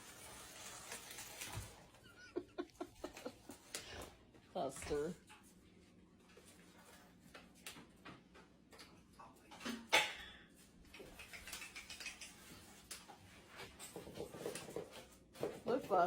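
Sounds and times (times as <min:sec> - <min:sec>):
parrot beak clicking on cage: 0:10.9 - 0:12.4.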